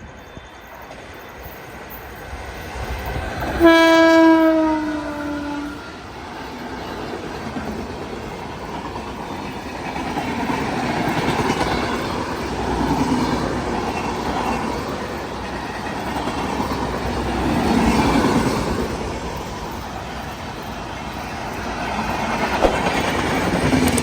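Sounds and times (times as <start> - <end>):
train wheels clattering on rails: 0.0 - 24.0.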